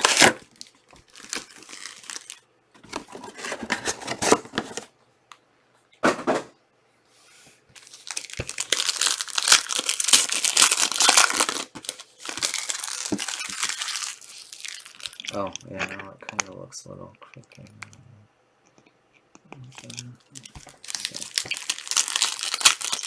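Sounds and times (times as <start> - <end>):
wrappers torn and crinkled: 0.0 - 4.2, 7.8 - 16.0, 19.7 - 23.0.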